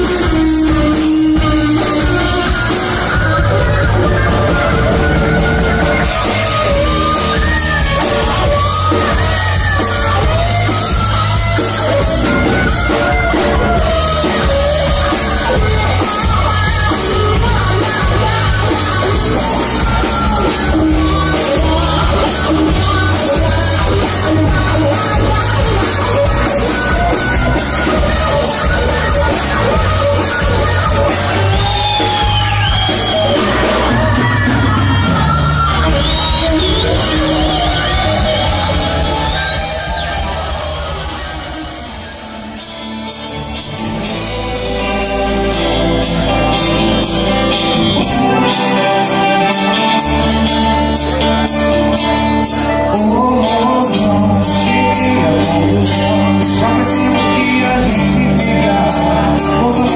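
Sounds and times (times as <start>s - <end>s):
band playing: 0.0s - 59.9s
bass and drum beat: 0.0s - 59.9s
person singing: 0.0s - 59.9s.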